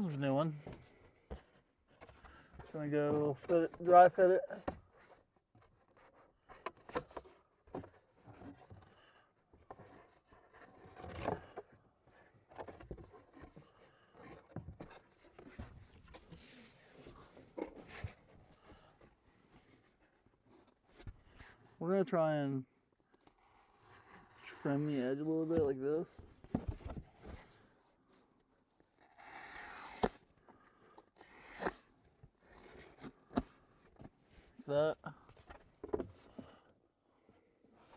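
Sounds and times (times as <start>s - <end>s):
styrofoam scraping cuts: 29.0s - 30.2s, 31.2s - 31.9s.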